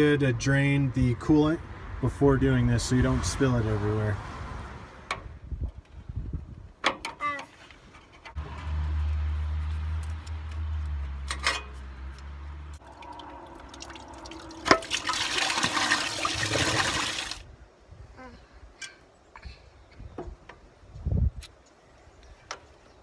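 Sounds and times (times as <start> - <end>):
low hum: 11.6 - 16.5
coolant splashing into container: 12.8 - 17.4.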